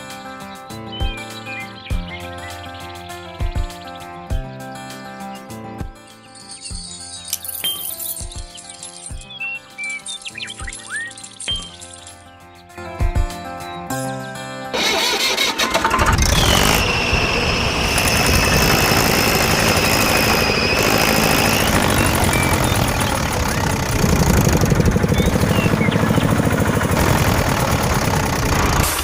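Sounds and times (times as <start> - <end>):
motor chugging rhythmically: 14.8 - 29.0
small motor whining: 14.8 - 29.0.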